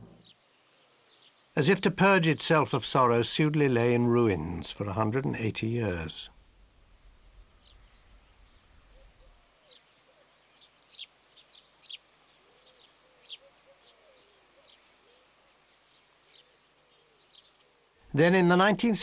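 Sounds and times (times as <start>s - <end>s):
soft low curving bird calls: 6.4s - 18.2s.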